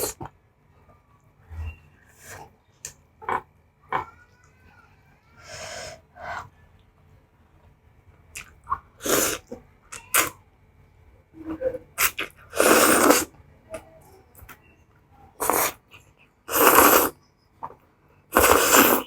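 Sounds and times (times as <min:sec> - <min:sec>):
quiet chewing: 0:08.2 - 0:10.4
loud noodle slurps: 0:09.0 - 0:09.4, 0:12.0 - 0:13.3, 0:15.4 - 0:15.8, 0:16.5 - 0:17.2, 0:18.3 - 0:19.0.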